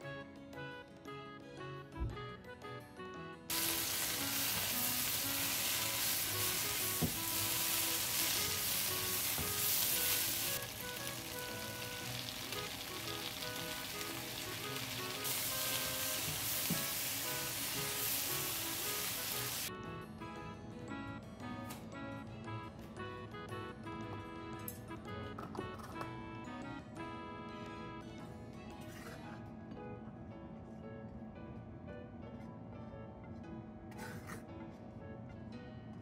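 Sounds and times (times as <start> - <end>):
soft background music: 0.0 - 36.0
vegetables sizzling in frying pan: 3.5 - 19.7.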